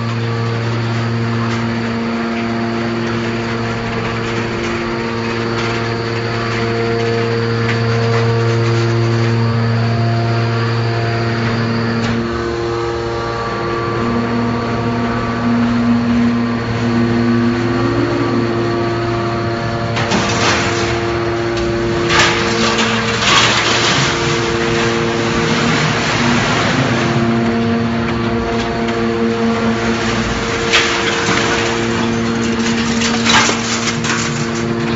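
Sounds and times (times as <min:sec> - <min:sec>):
baler pump humming drone: 0:00.0 - 0:34.9
grinding with sharp knocks: 0:18.4 - 0:34.9.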